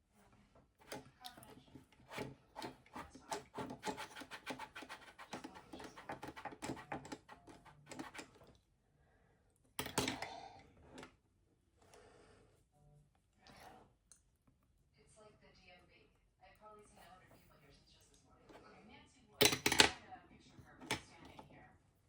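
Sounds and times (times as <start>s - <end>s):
applicator tapping and rubbing: 0.8s - 8.5s.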